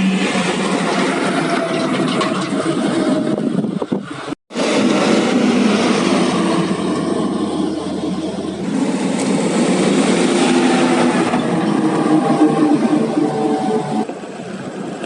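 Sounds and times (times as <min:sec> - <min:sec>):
truck diesel engine running: 0:00.0 - 0:14.3.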